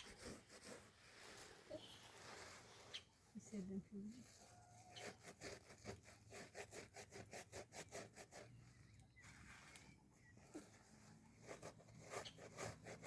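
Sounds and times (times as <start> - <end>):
hand saw cutting wood: 0.0 - 1.2, 4.8 - 8.6, 11.4 - 13.0.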